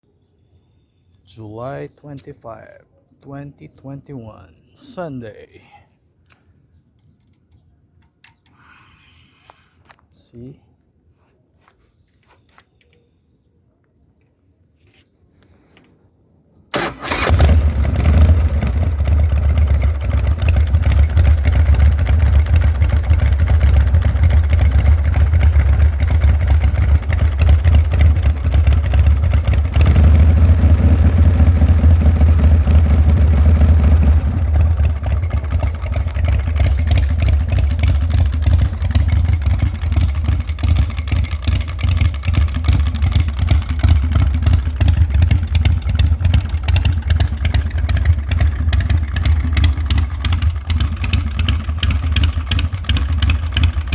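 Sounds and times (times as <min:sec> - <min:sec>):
motorcycle engine running: 0:16.8 - 0:53.9.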